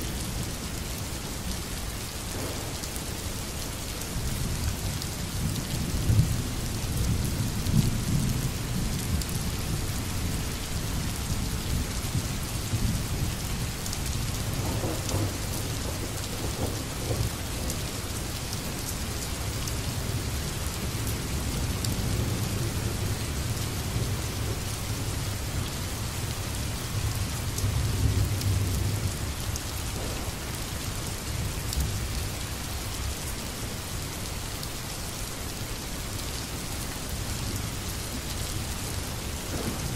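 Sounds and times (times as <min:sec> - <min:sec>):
rain hissing: 0:00.0 - 0:05.2, 0:14.6 - 0:34.8, 0:35.4 - 0:39.9
thunder rumbling: 0:02.3 - 0:03.4, 0:14.5 - 0:17.8, 0:29.8 - 0:32.0, 0:39.3 - 0:39.9.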